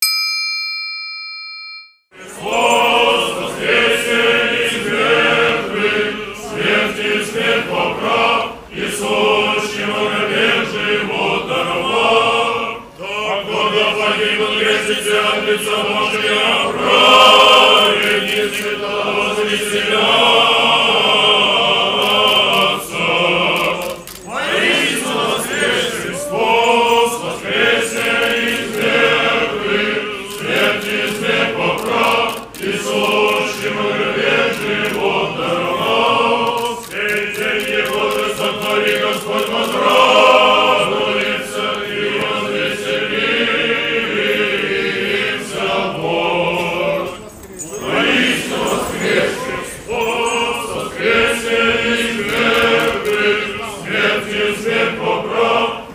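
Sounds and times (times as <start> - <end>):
church choir chanting a hymn: 2.1 - 55.9.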